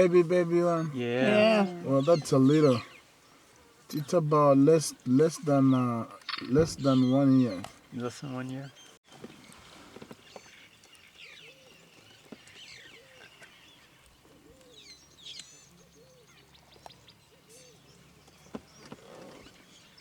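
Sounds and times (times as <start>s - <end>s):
low repeated bird call: 5.7s - 20.0s.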